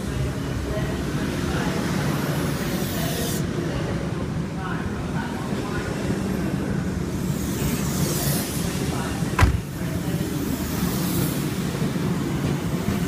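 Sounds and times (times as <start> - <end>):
sharp knock: 9.4 - 9.7.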